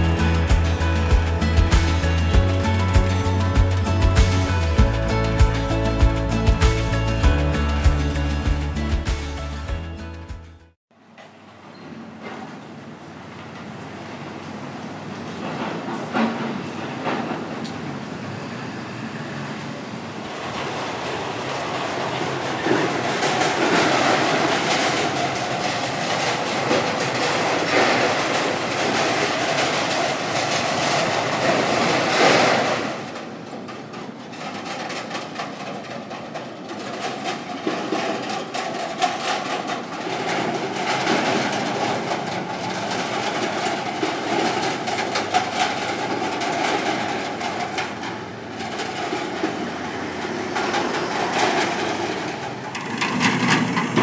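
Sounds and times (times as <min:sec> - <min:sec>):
bridge deck rattling and clanking: 0:00.0 - 0:10.4
motorcycle engines humming: 0:00.0 - 0:10.5.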